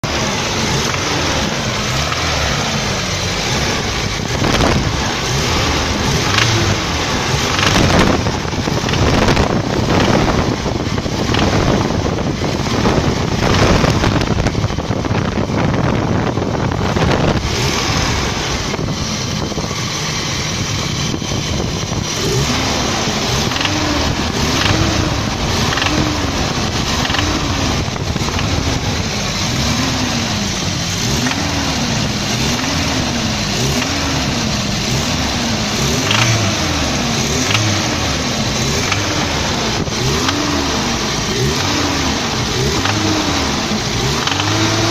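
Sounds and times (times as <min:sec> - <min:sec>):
pickup engine running: 0:00.0 - 0:44.9.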